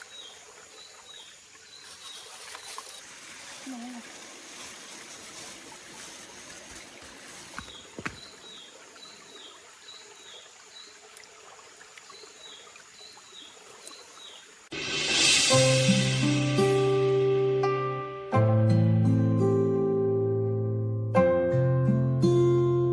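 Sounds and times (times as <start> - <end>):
stream water trickling: 0.0 - 14.8.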